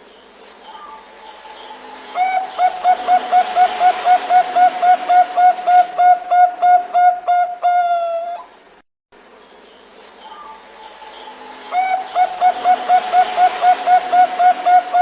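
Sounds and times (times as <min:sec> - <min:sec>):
steady hiss: 0:00.0 - 0:15.0
dove cooing: 0:00.8 - 0:08.5, 0:11.1 - 0:15.0.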